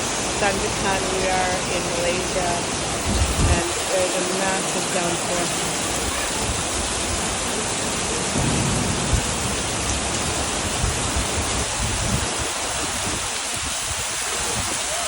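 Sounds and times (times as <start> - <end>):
heavy rain pouring: 0.0 - 15.0
low rumble: 8.3 - 12.2.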